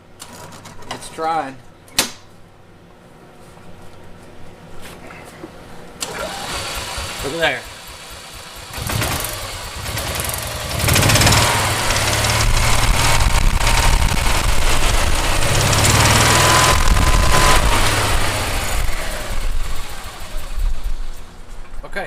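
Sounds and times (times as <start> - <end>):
golf cart engine turning over: 6.0 - 21.3.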